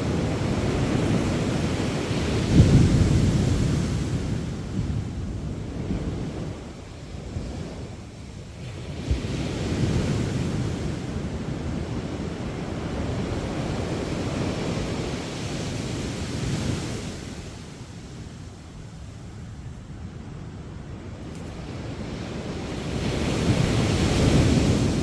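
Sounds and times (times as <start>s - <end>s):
wind rumble on microphone: 0.0s - 25.0s
sea waves breaking on beach: 21.3s - 25.0s.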